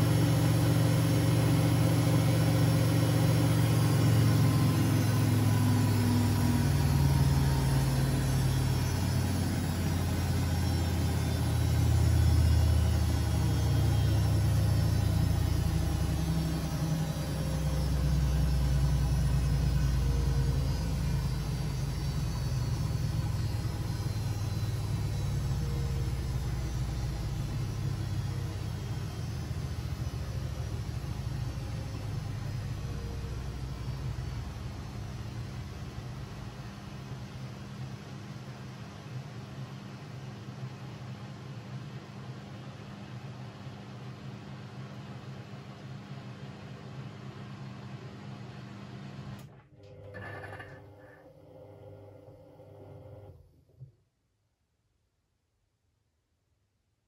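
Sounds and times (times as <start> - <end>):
whine sliding down in pitch: 0.0 - 36.7
washing machine rumbling hum: 0.0 - 54.0.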